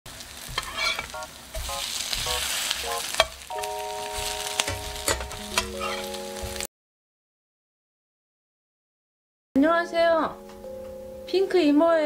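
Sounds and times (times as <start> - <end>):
pancakes sizzling in oil: 0.1 - 6.7
utensils knocking against pan: 0.5 - 2.4, 3.1 - 3.4, 4.6 - 6.2
steady held chord: 2.9 - 6.7.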